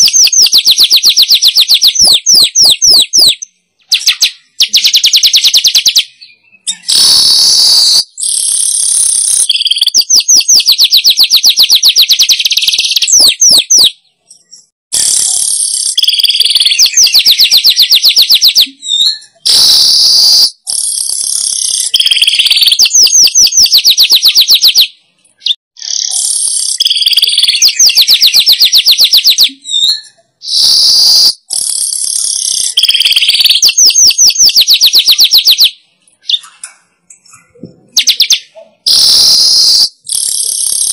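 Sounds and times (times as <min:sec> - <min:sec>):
bird song buzzy and chattering: 0:00.0 - 0:40.9.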